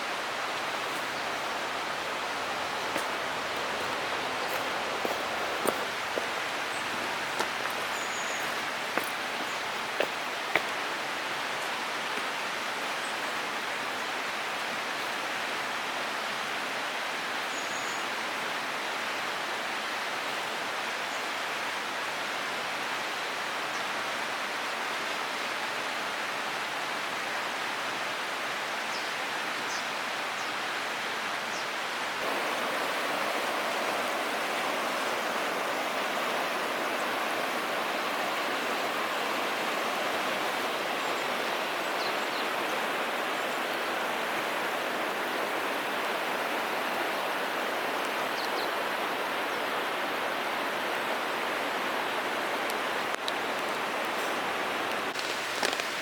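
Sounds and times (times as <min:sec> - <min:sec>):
water flowing: 0:00.0 - 0:15.9, 0:32.2 - 0:56.0.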